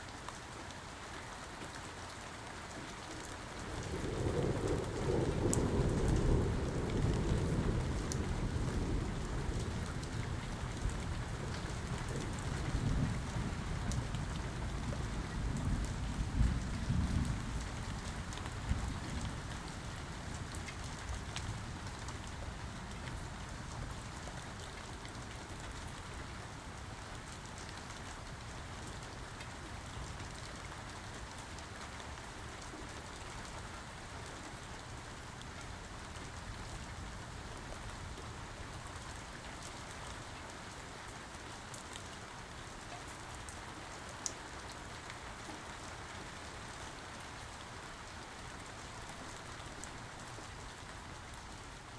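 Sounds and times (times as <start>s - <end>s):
steady rain hiss: 0.0s - 51.9s
faint drip ticks: 3.2s - 19.7s
low rumble of thunder: 3.4s - 24.5s, 48.6s - 51.8s.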